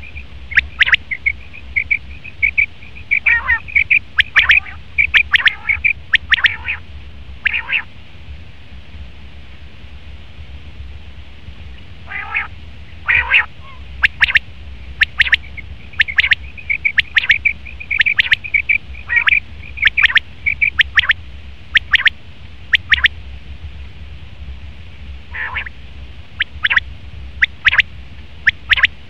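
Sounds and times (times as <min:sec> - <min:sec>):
quail calling: 0:00.0 - 0:06.8, 0:07.4 - 0:07.9, 0:12.1 - 0:22.1, 0:22.7 - 0:23.1, 0:25.3 - 0:25.7, 0:26.4 - 0:26.8, 0:27.4 - 0:27.8, 0:28.4 - 0:28.9
steady low hum: 0:00.0 - 0:29.0.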